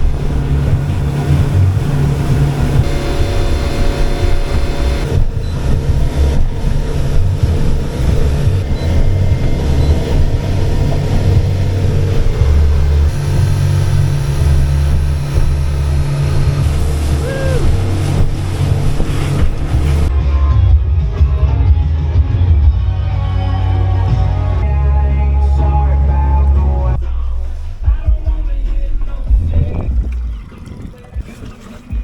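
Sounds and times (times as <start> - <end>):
outboard motor running: 0.0 - 20.1
low uneven rumble: 0.0 - 32.0.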